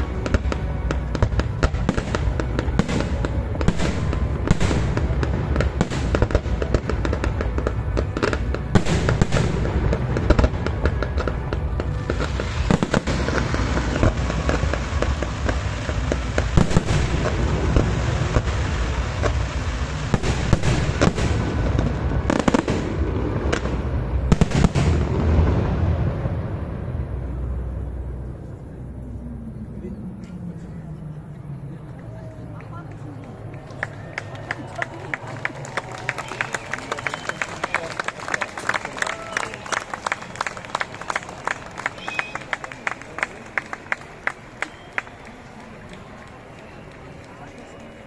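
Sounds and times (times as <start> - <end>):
fireworks bangs and pops: 0.0 - 26.8
fireworks crackling: 0.0 - 29.4, 30.4 - 48.0.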